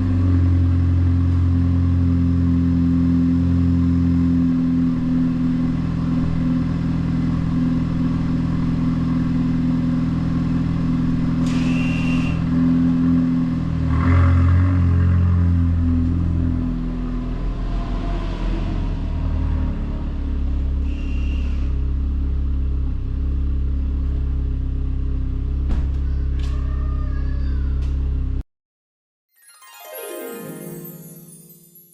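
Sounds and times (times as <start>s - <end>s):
car engine idling: 0.0s - 13.9s, 19.1s - 26.4s.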